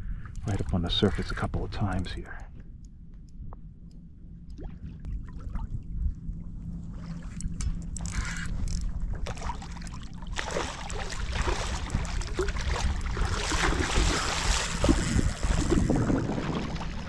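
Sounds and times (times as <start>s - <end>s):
water splashing around kayak: 9.0s - 17.0s
wind on microphone: 11.0s - 17.0s.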